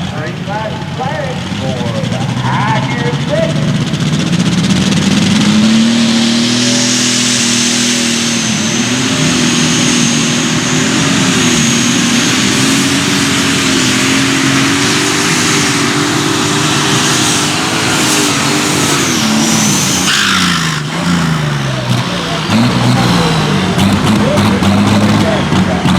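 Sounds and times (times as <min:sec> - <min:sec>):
tractor engine running under load: 0:00.0 - 0:25.9
high turbo whistle: 0:05.2 - 0:23.8.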